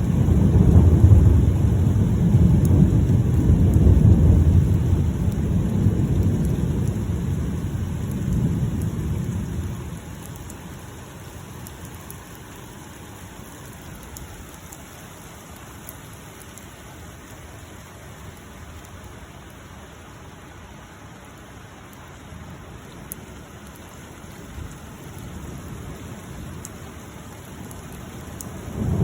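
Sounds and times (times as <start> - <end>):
thunder rumbling: 0.0 - 14.7, 23.8 - 29.0
steady rain: 0.0 - 29.0.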